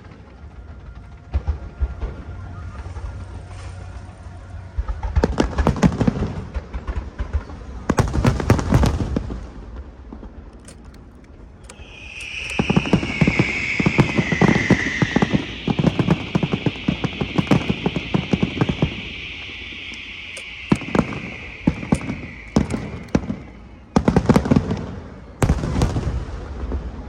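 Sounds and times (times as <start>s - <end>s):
fireworks bangs and crackles: 0.0s - 3.3s, 4.8s - 10.5s, 11.4s - 27.0s
firework whistling shriek: 10.6s - 26.8s.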